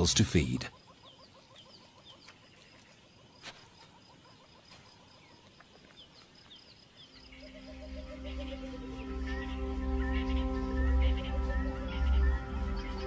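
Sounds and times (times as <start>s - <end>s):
bird chirps: 0.0s - 13.0s
pulsing insect trill: 7.2s - 13.0s.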